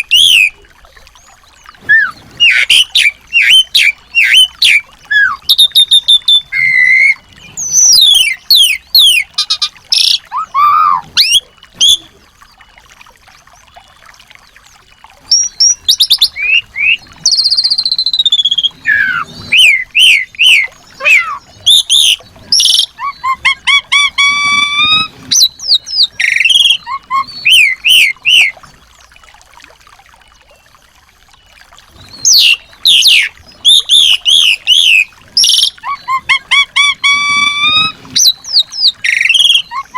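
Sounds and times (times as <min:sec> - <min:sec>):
songbirds chirping and trilling: 0:00.0 - 0:17.2.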